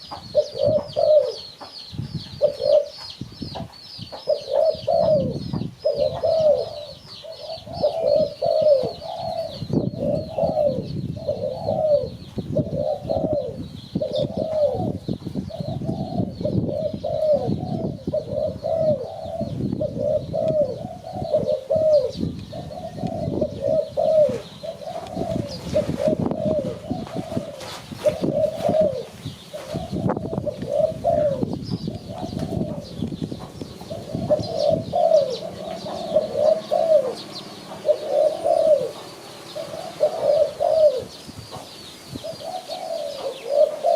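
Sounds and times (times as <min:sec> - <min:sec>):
dove cooing: 0:00.0 - 0:01.7, 0:02.3 - 0:03.2, 0:04.1 - 0:43.9.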